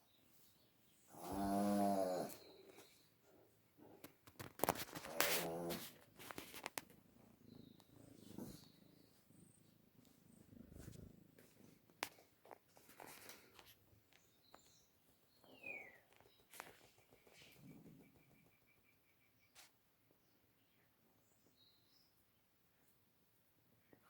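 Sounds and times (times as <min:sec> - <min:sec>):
cat purring: 0:03.7 - 0:12.4
clicks and rustles: 0:03.8 - 0:08.7, 0:10.0 - 0:14.7, 0:15.6 - 0:18.5.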